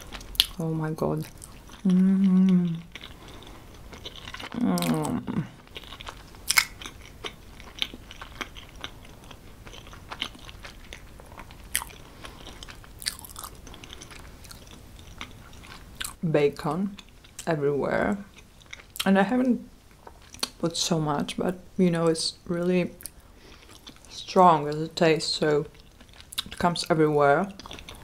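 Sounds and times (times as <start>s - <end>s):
chewing with wet mouth clicks: 1.2s - 16.2s, 20.0s - 20.6s, 25.7s - 26.7s, 27.5s - 28.0s.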